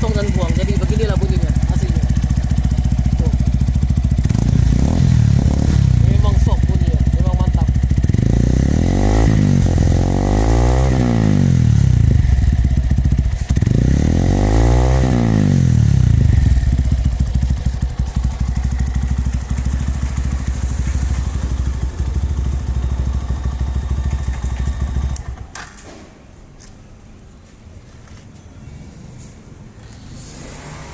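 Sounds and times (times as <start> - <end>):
motorcycle engine revving and idling: 0.0 - 25.6.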